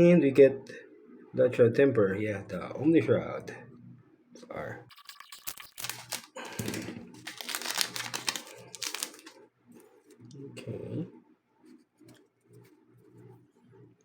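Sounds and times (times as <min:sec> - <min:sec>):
foil wrapper crinkling and tearing: 0:04.9 - 0:09.4.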